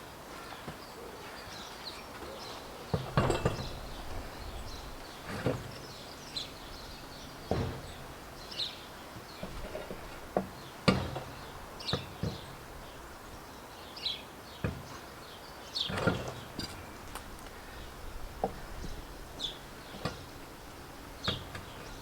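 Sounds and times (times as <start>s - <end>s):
steady outdoor hiss: 0.0s - 22.0s
small birds chirping: 0.3s - 22.0s
sharp knocks and clunks: 2.9s - 4.0s, 7.4s - 8.1s, 9.4s - 12.7s, 14.6s - 15.0s, 18.4s - 19.0s.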